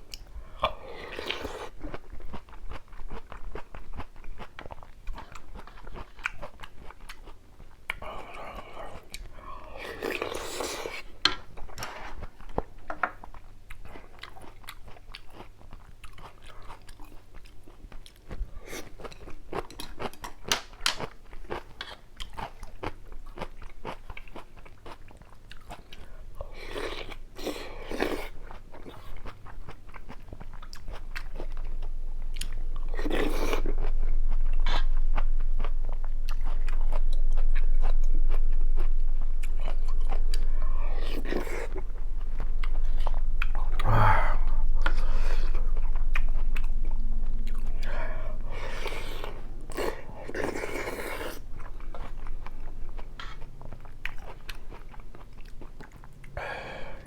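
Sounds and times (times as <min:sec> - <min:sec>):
low rumble: 0:31.4 - 0:50.4.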